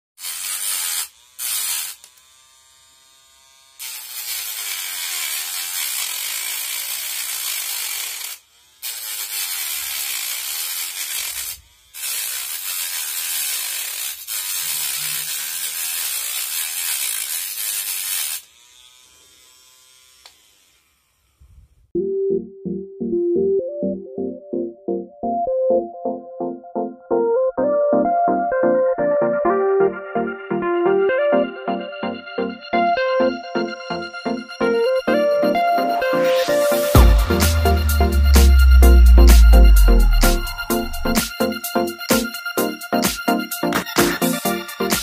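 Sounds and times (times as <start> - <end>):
small motor whine: 0.2 - 21.9, 33.6 - 41.3.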